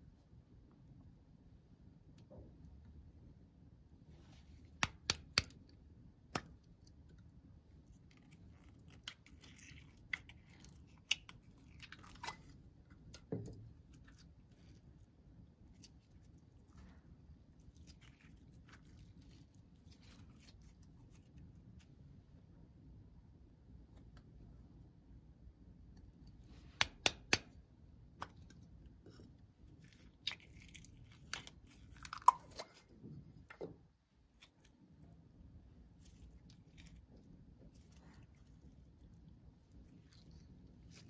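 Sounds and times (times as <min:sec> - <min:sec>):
slime clicks and crackles: 0:07.8 - 0:14.8, 0:29.8 - 0:32.8.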